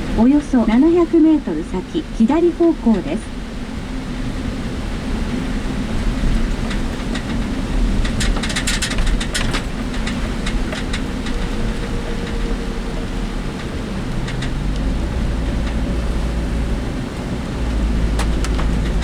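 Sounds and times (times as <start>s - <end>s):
engine and road rumble: 0.0s - 19.0s
vehicle body rattling: 4.6s - 19.0s.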